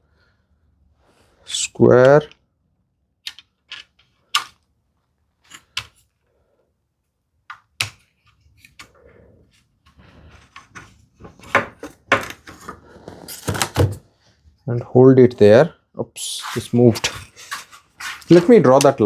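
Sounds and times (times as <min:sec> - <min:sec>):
tools clicking on wooden workpiece: 0:03.3 - 0:04.6
soft handling and rubbing: 0:07.8 - 0:14.9, 0:16.2 - 0:19.0.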